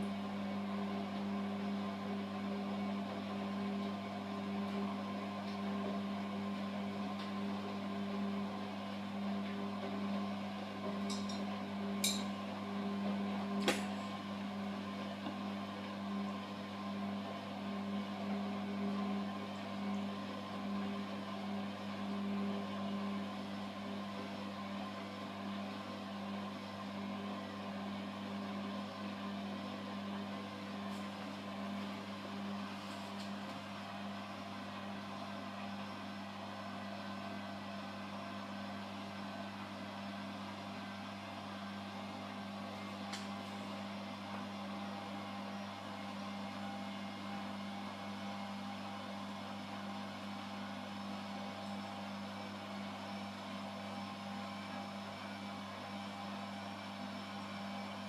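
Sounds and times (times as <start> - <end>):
washing machine humming: 0.0 - 58.0.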